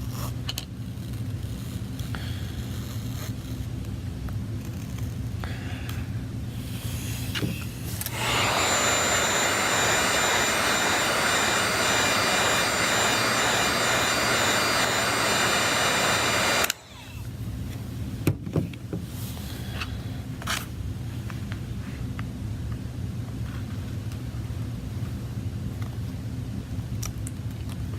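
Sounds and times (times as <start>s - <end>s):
hot-air blower whining: 5.4s - 20.4s.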